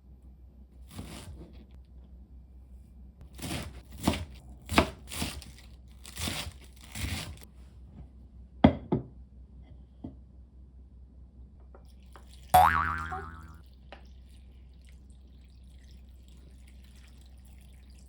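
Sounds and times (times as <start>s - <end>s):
knife scraping and cutting: 0.9s - 1.7s, 3.4s - 7.4s.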